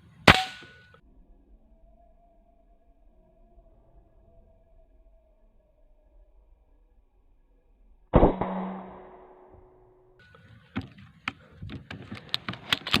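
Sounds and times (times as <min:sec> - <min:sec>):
air rifle shot: 0:00.3 - 0:00.8, 0:08.2 - 0:09.6
sharp clicks and knocks: 0:10.8 - 0:13.0.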